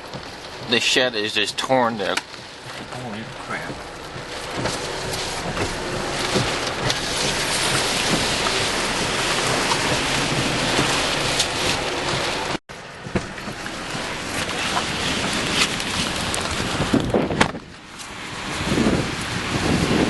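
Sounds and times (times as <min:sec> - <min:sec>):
raindrops ticking: 0:00.0 - 0:17.1
heavy rain: 0:00.0 - 0:20.0
wind: 0:00.0 - 0:20.0.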